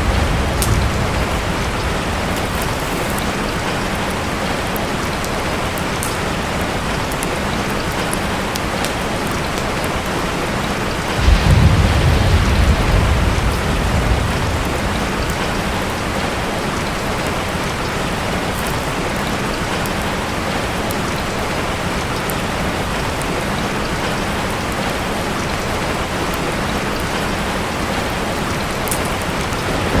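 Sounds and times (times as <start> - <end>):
low rumble of thunder: 0.0 - 4.8, 10.7 - 18.4, 29.2 - 30.0
steady rain: 0.0 - 30.0.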